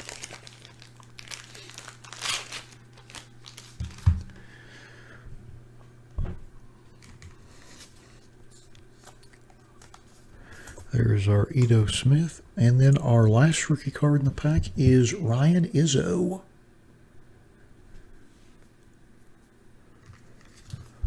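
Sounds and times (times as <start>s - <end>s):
plastic bag crinkling: 0.0s - 4.6s, 6.9s - 11.8s, 20.0s - 21.0s
low electrical hum: 0.0s - 21.0s.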